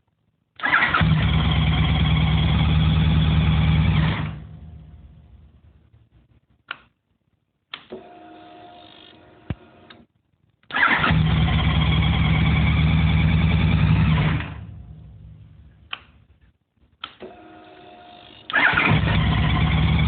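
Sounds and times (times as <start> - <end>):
engine humming and running: 1.0 - 5.0, 11.1 - 15.6, 18.6 - 20.0.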